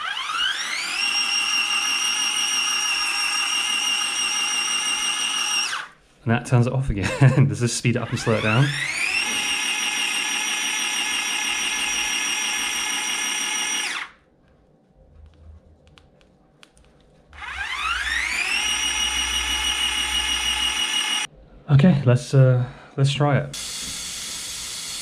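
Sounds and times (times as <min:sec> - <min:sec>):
small electric motor whining: 0:00.0 - 0:06.0, 0:08.1 - 0:14.2, 0:17.4 - 0:21.3, 0:23.6 - 0:25.0.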